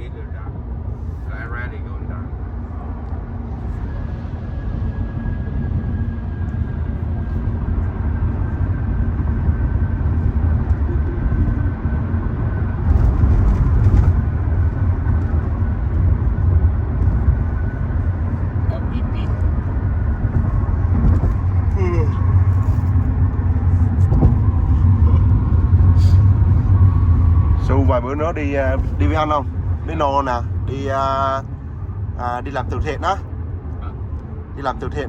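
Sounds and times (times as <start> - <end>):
car road and engine rumble: 0.0 - 35.0.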